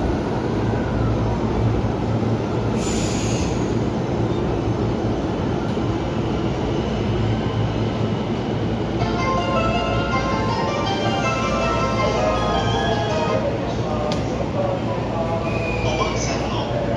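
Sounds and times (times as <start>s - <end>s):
electric train rumbling: 0.0s - 16.9s
high-pitched train squeal: 15.4s - 16.3s.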